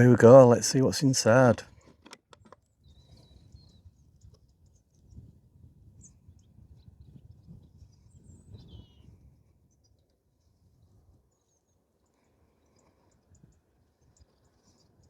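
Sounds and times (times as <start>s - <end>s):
faint bird chirps: 6.0s - 10.1s.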